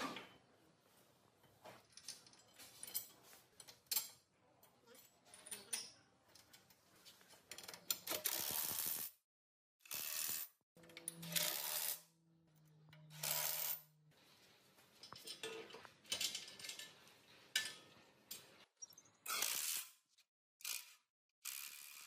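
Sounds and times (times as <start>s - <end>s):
metal parts clinking and scraping: 12.8s - 13.9s, 15.0s - 18.1s.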